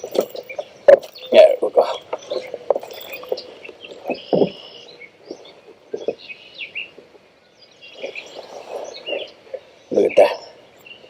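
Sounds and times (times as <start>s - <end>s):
birds calling and chirping: 0.0s - 11.0s
dull knocks: 4.1s - 4.6s.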